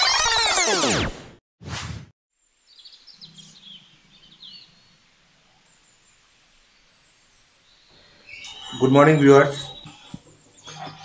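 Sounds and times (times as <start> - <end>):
faint birds chirping: 2.4 - 11.0.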